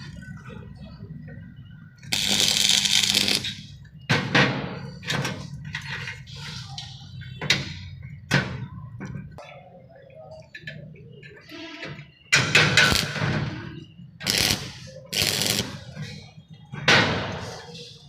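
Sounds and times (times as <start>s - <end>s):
welding arc crackling hiss: 2.1s - 3.6s, 14.2s - 15.8s.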